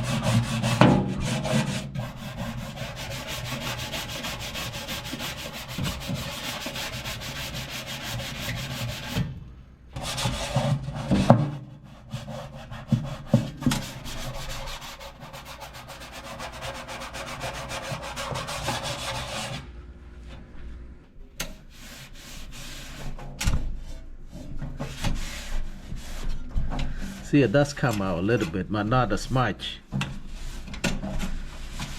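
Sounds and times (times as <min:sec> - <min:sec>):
rough scrubbing: 0:00.0 - 0:09.2.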